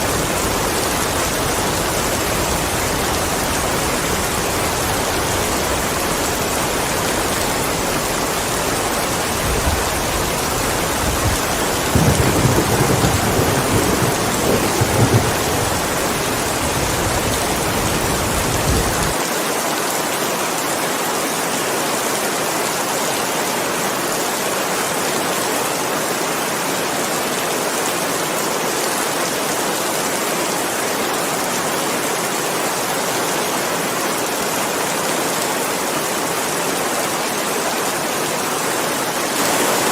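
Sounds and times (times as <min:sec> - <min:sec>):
steady rain falling: 0:00.0 - 0:39.9
low roll of thunder: 0:09.5 - 0:19.2.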